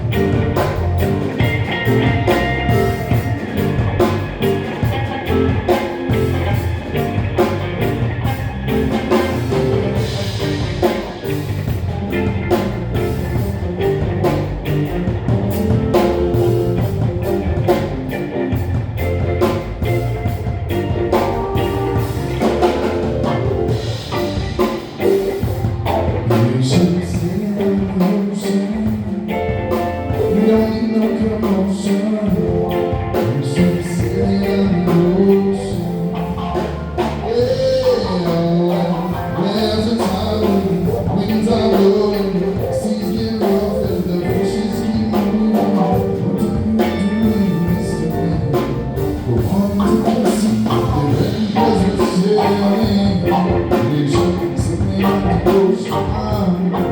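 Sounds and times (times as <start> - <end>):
live band playing: 0.0 - 56.9.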